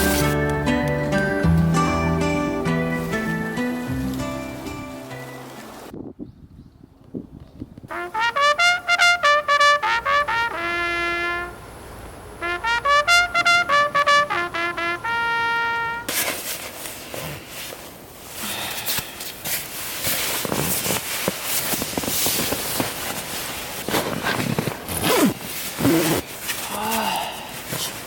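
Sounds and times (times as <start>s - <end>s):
trumpet melody: 0.0s - 5.6s, 7.9s - 16.2s
rustling: 0.0s - 5.9s, 15.9s - 28.0s
gusty wind: 4.6s - 15.6s.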